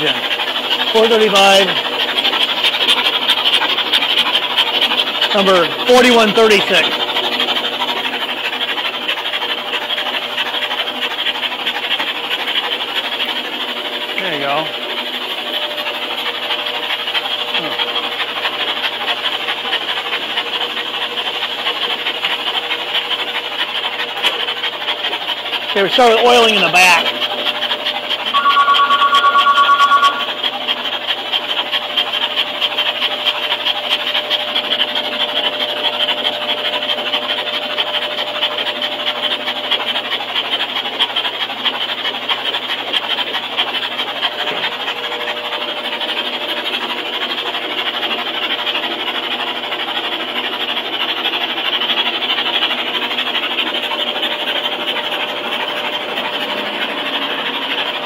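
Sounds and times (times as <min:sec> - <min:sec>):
loud two-tone beep: 0:28.4 - 0:30.4.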